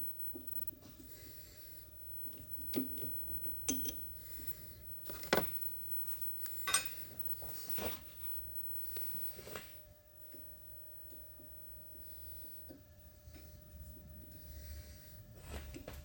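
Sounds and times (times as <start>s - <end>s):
metal tools clinking: 5.1s - 7.4s.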